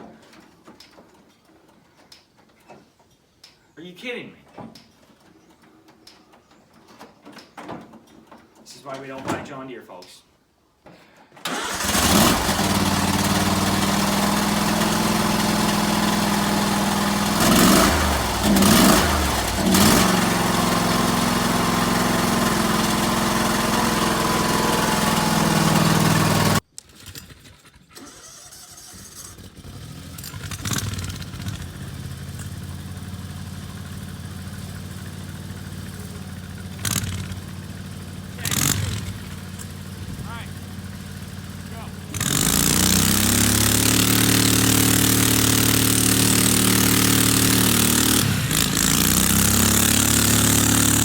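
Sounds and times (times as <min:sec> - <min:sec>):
quieter engine running: 0:11.5 - 0:26.6, 0:29.4 - 0:51.0
small gasoline engine running: 0:11.5 - 0:51.0.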